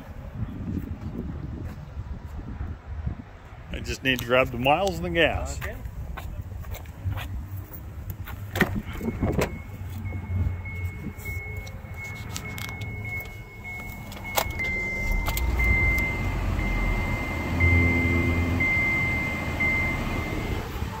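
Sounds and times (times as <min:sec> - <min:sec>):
car engine starting and idling: 0:07.4 - 0:21.0
door-open warning chime beeping: 0:09.2 - 0:20.8.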